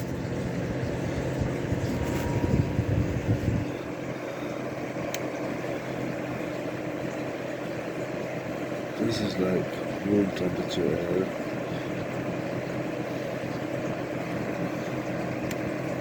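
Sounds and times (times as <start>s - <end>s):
space heater fan running: 0.0s - 16.0s.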